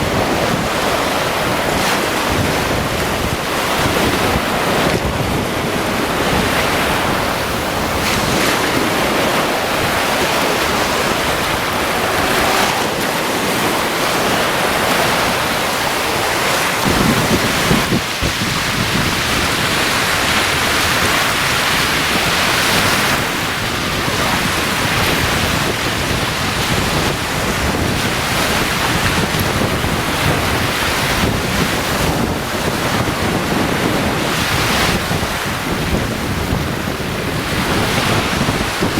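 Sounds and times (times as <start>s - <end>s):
waves washing onto beach: 0.0s - 38.9s
wind buffeting microphone: 0.0s - 38.9s.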